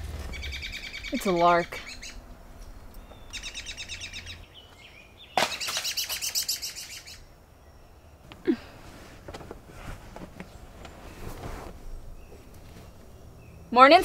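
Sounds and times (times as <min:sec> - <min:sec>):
songbird chirping trills: 0:00.0 - 0:08.6, 0:12.0 - 0:14.0.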